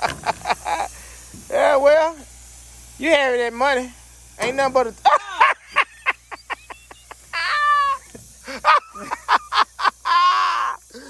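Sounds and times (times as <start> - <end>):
man laughing hard: 0.0 - 0.9, 5.0 - 11.0.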